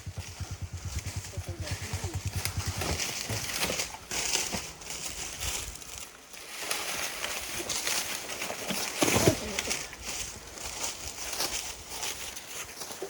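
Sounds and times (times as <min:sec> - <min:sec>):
scattered clicks: 0:00.0 - 0:04.4
motorcycle engine idling: 0:00.0 - 0:05.5
crunching and rustling: 0:02.8 - 0:13.0.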